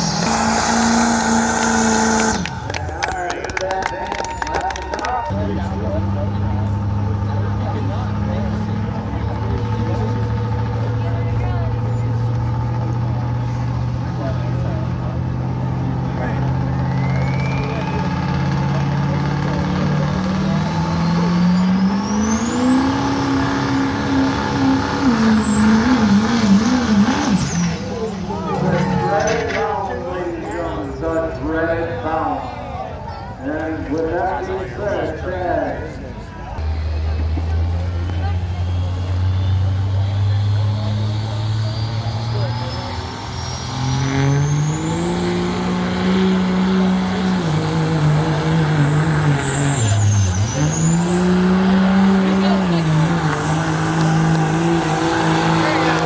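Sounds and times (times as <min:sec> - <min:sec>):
high turbo whistle: 0:00.0 - 0:03.2
turbocharger whistle: 0:00.0 - 0:05.6, 0:15.9 - 0:29.4, 0:37.4 - 0:56.0
diesel truck engine revving: 0:00.0 - 0:56.0.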